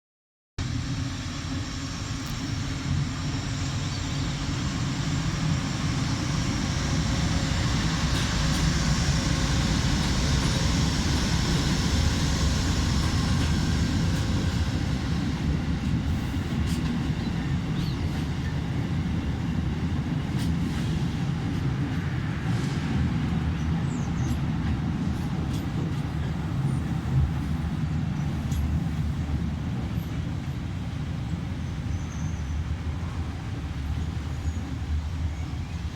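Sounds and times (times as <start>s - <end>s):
train rumbling past: 0.6s - 35.9s.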